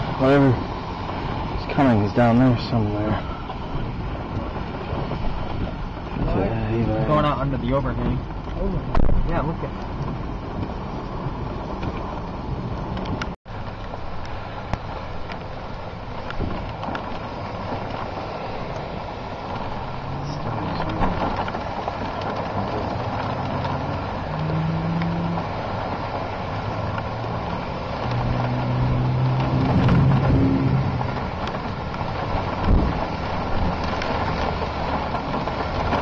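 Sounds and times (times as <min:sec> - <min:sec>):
road and wind noise: 0:00.0 - 0:36.0
car engine revving: 0:17.2 - 0:36.0.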